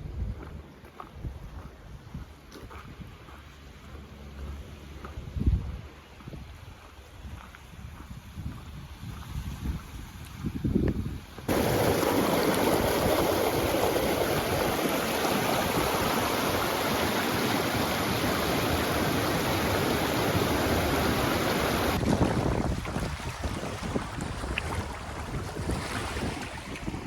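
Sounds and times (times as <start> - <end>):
steady rushing noise: 11.5 - 22.2.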